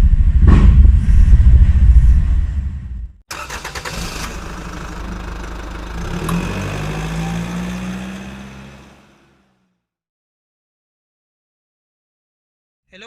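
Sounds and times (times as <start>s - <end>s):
car engine running: 3.3s - 9.5s.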